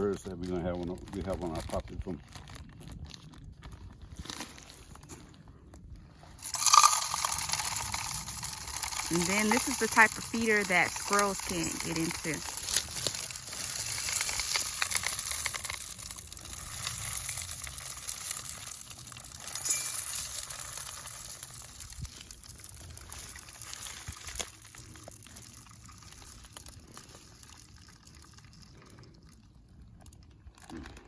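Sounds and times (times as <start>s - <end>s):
birdseed pouring: 6.4s - 29.0s.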